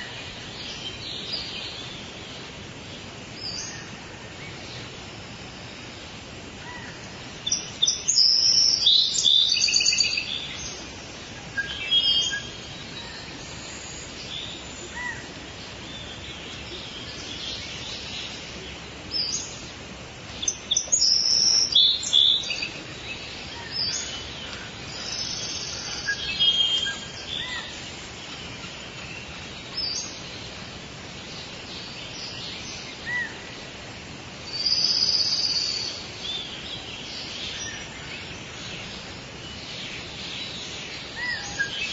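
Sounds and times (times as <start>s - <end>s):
steady background hiss: 0.0s - 41.9s
birds chirping and whistling: 7.4s - 30.6s, 34.5s - 41.9s.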